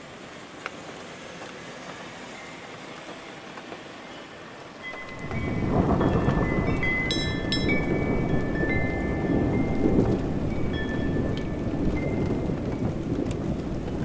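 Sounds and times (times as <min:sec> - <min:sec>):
steady rain: 0:00.0 - 0:14.0
faint high ringing tones: 0:02.2 - 0:12.8
thunder rumbling: 0:05.0 - 0:14.0.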